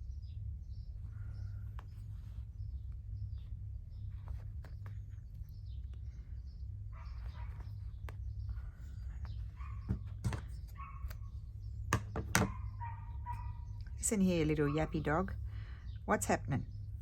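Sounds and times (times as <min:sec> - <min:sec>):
steady low hum: 0:00.0 - 0:17.0
small dog yapping: 0:09.5 - 0:11.3, 0:12.4 - 0:13.8.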